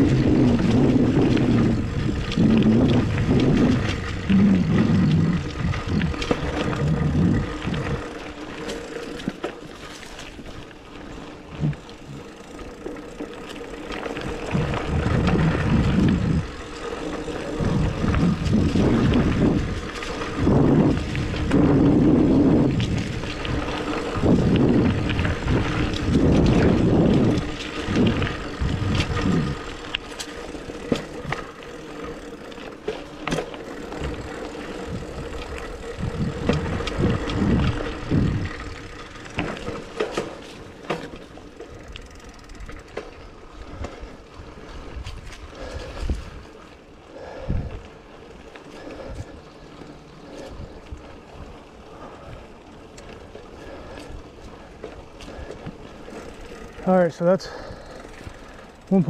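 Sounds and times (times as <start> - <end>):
wind on microphone: 0.0 - 8.2, 14.0 - 31.4, 33.8 - 39.9, 43.6 - 48.0
bike clicks and rattles: 0.0 - 59.0
bike tyres rumbling on dirt: 0.0 - 59.0.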